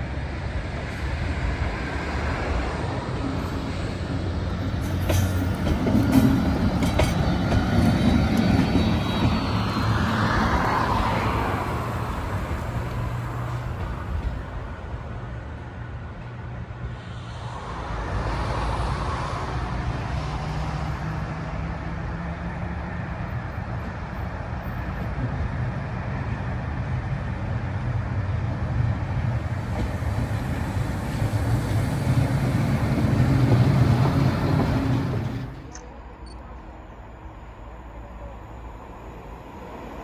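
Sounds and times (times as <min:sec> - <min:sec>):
train rumbling past: 0:00.0 - 0:40.0.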